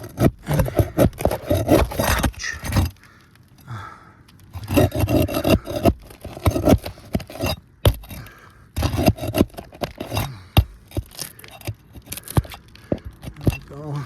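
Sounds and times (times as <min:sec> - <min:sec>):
roof shingles being scraped: 0:00.0 - 0:03.1, 0:04.5 - 0:14.0.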